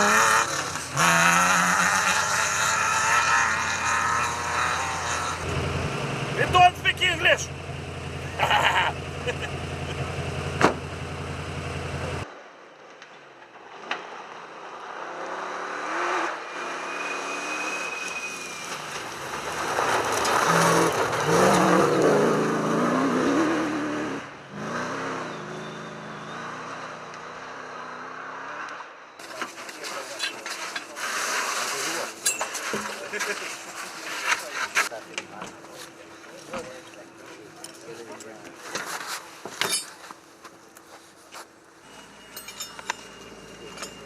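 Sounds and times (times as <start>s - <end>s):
rally cars driving and revving: 0.0s - 12.3s, 13.6s - 39.0s, 41.8s - 44.0s
steady engine hum: 0.0s - 12.3s, 31.8s - 44.0s.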